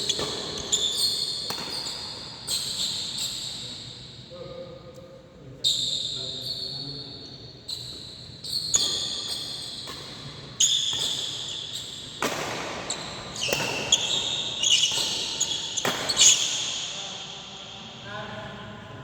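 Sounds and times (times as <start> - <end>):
shoes squeaking on court floor: 0.0 - 3.9, 5.6 - 17.0
racket striking shuttlecock: 12.2 - 12.8, 13.4 - 14.1, 14.7 - 16.6.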